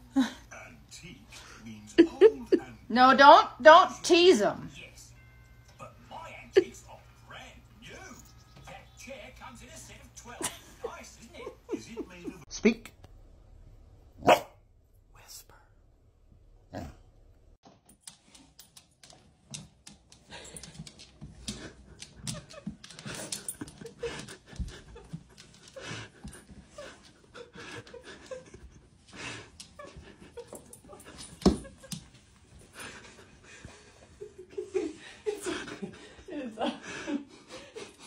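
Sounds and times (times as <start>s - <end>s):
dog panting: 20.3s - 31.1s.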